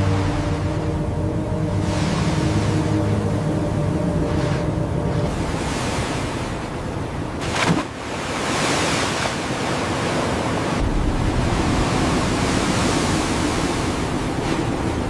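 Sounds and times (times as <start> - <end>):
blizzard wind rushing: 0.0 - 15.0
deep low rumble: 10.8 - 13.2.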